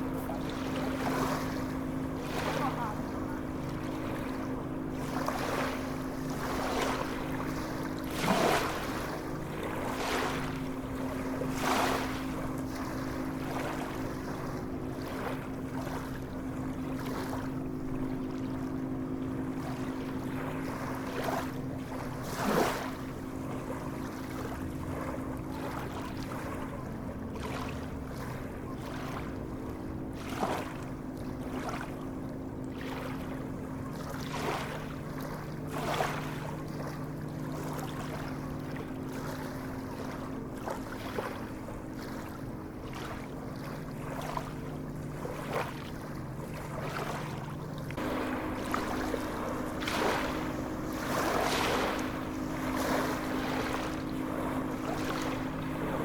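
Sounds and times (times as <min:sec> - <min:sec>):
low hum: 0:00.0 - 0:22.4, 0:36.5 - 0:56.0
sea waves splashing: 0:00.0 - 0:56.0.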